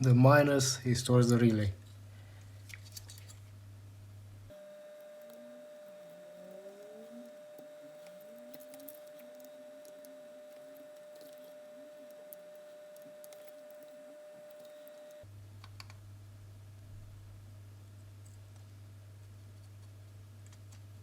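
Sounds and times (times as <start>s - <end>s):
low hum: 3.4s - 19.0s
high electrical whine: 4.5s - 15.3s.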